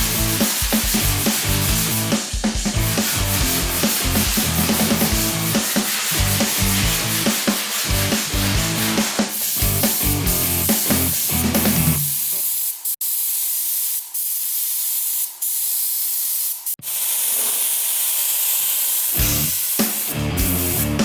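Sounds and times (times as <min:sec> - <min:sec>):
spray gun hissing: 0:00.0 - 0:02.2, 0:02.8 - 0:21.0
rock music: 0:00.0 - 0:12.1, 0:19.2 - 0:21.0.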